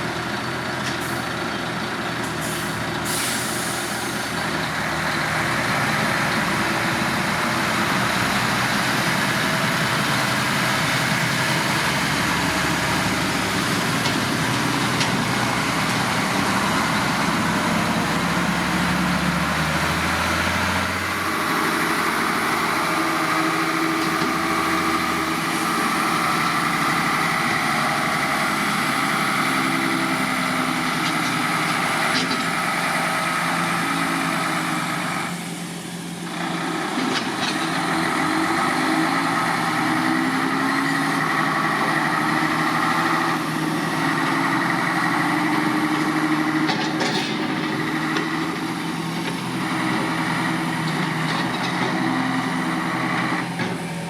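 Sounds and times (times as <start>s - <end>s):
concrete mixer truck engine rumbling: 0.0s - 54.0s
short air hiss: 2.4s - 4.2s.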